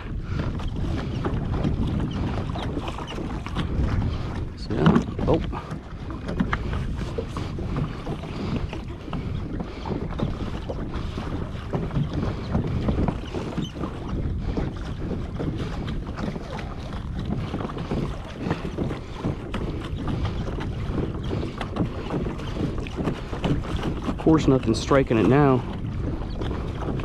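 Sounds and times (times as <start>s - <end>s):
water splashing along a hull: 0.0s - 27.0s
wind buffeting microphone: 0.0s - 27.0s.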